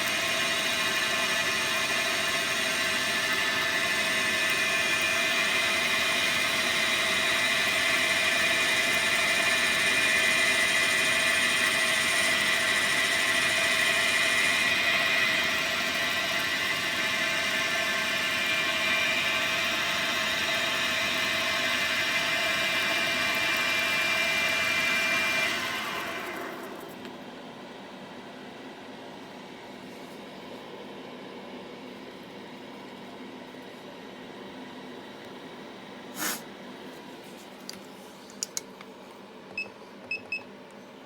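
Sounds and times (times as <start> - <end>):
lathe mechanical whine: 0.0 - 27.4.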